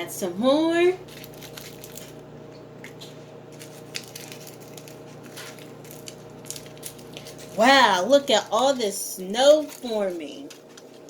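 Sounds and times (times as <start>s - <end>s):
steady low hum: 0.0s - 11.0s
small crackles and ticks: 1.1s - 2.2s, 3.6s - 7.6s.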